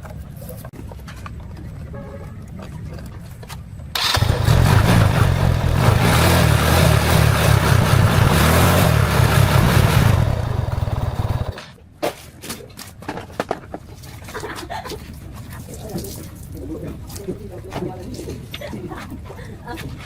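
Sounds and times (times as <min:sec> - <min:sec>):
motorbike engine revving: 0:04.0 - 0:11.6.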